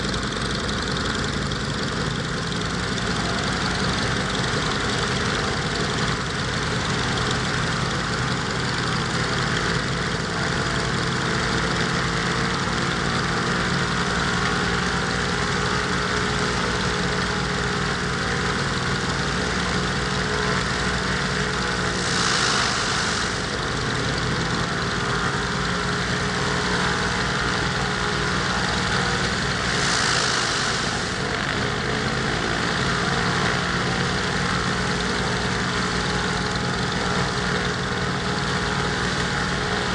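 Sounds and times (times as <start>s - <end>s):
aircraft piston engine running: 0.0s - 39.9s
rush of hiss: 21.8s - 23.7s, 29.2s - 31.4s.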